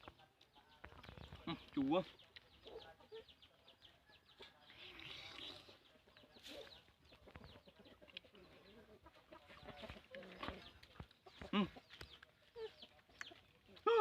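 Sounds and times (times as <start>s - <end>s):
animal clucking calls: 4.3s - 14.0s.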